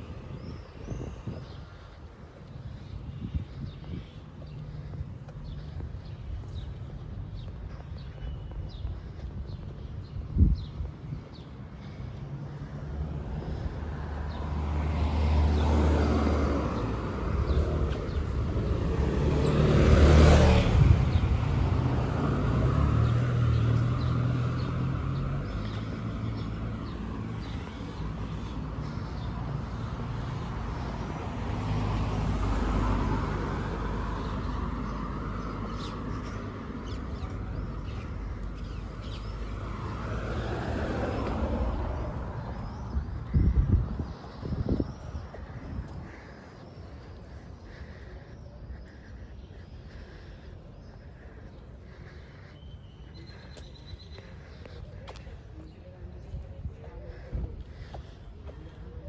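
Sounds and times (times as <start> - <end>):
cars driving past: 12.3 - 48.0.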